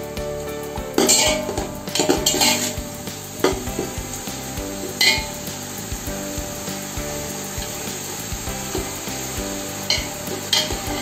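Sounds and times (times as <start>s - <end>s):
oil sizzling: 0.0s - 11.0s
ladle scraping and clinking on pot: 9.9s - 11.0s.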